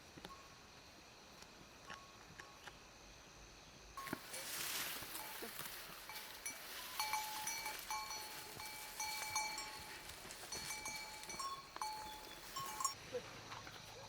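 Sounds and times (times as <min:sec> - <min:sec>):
livestock bell clanking: 0:04.0 - 0:13.0.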